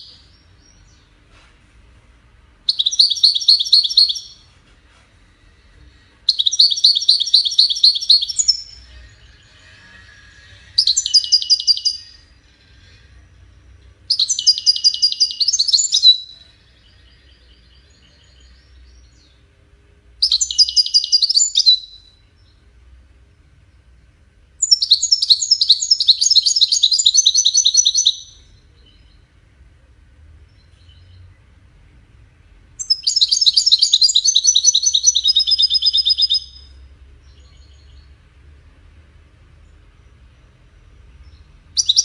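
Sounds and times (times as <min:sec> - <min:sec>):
goldfinch singing: 0:02.7 - 0:04.4, 0:06.3 - 0:12.4, 0:14.1 - 0:19.4, 0:20.2 - 0:22.2, 0:24.6 - 0:29.2, 0:32.8 - 0:38.1, 0:41.3 - 0:42.0.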